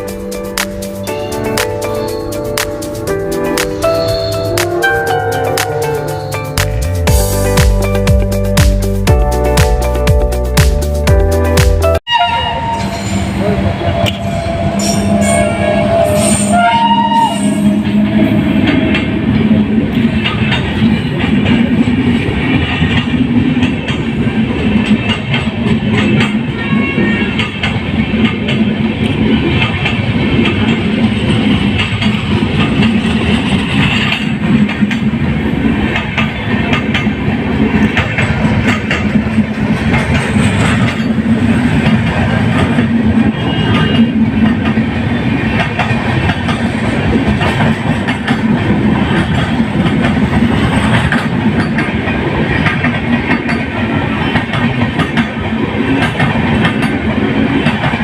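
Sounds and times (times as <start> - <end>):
train wheels rumbling on rails: 0.0 - 58.0
rapid rail clicks: 0.2 - 4.0, 24.8 - 26.5, 27.4 - 58.0.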